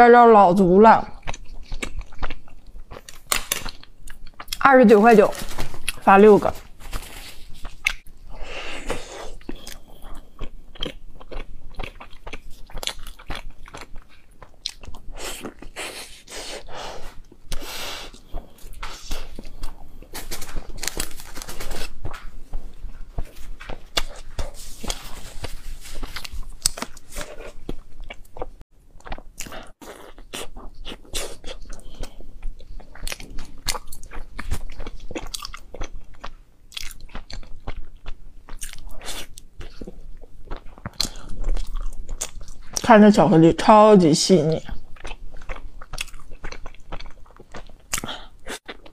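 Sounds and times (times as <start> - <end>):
wet chewing: 1.1 - 4.6, 8.8 - 43.0, 44.6 - 48.9.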